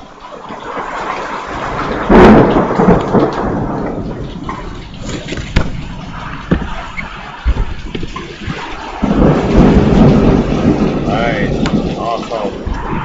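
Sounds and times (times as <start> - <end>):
steady rain: 0.0 - 13.0
loud thunderclap: 1.4 - 13.0.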